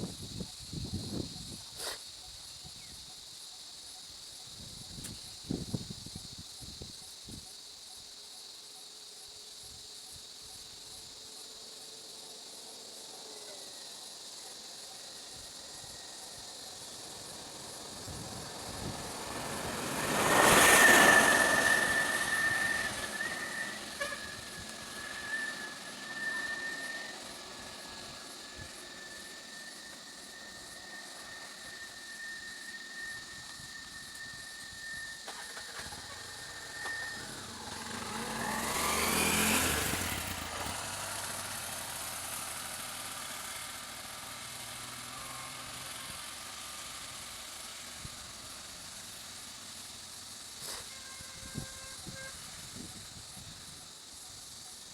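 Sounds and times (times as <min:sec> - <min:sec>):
high insect drone: 0:00.0 - 0:54.9
vehicle passing: 0:16.8 - 0:31.6, 0:35.5 - 0:47.9
thin high single tone: 0:28.5 - 0:37.9.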